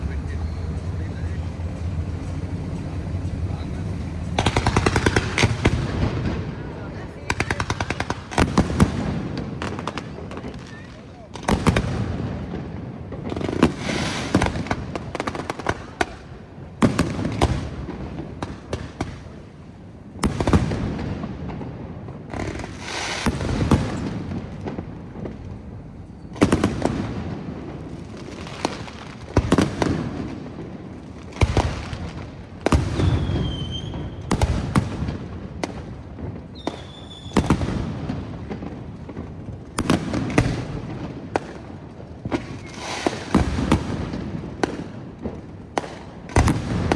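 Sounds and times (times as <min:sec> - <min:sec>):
firework whistles: 0:00.0 - 0:06.8, 0:13.6 - 0:15.0, 0:22.5 - 0:24.2, 0:32.7 - 0:34.8, 0:36.4 - 0:37.8, 0:42.4 - 0:43.5
firework shells bursting: 0:00.0 - 0:10.7.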